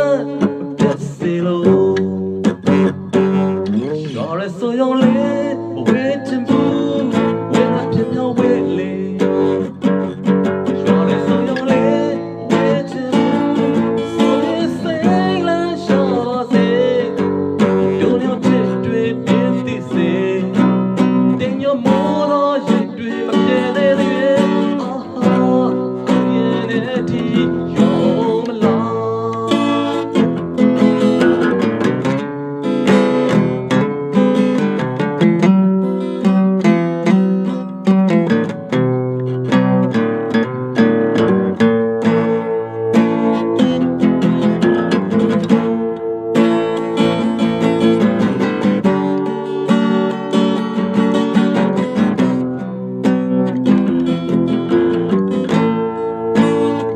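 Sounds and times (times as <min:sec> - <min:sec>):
person singing: 0:00.0 - 0:32.0
acoustic guitar: 0:00.0 - 0:56.9.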